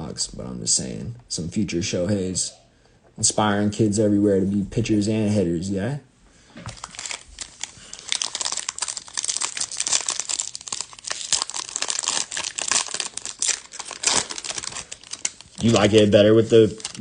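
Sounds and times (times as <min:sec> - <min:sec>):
plastic wrapper tearing and crinkling: 0:06.7 - 0:17.0.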